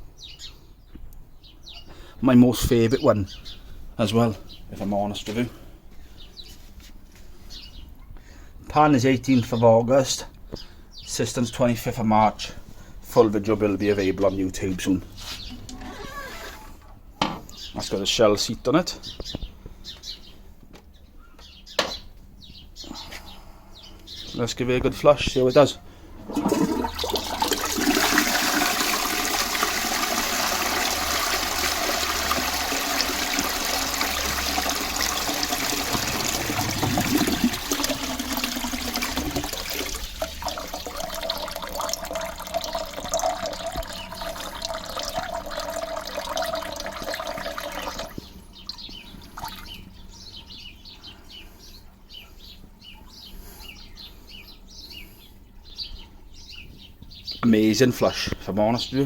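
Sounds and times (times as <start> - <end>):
cistern refilling with whine: 26.2 - 48.2
toilet flushing: 26.2 - 48.2
faint water trickle: 26.2 - 49.8.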